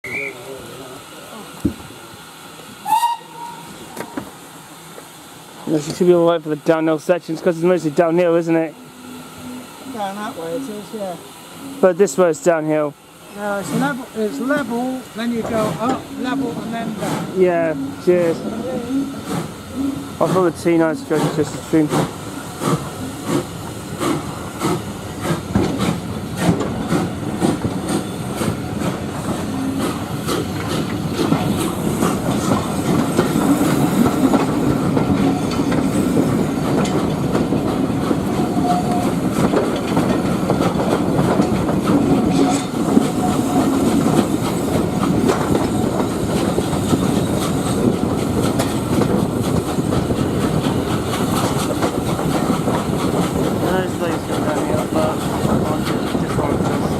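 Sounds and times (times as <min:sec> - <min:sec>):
train wheels clattering over rail joints: 0:13.6 - 0:56.9.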